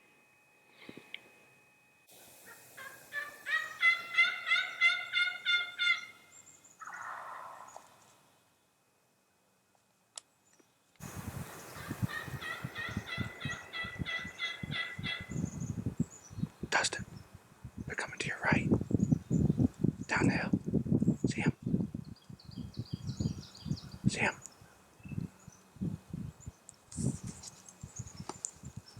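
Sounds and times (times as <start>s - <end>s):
turkeys calling: 2.4s - 8.0s, 11.0s - 15.6s
rustling: 26.8s - 28.7s.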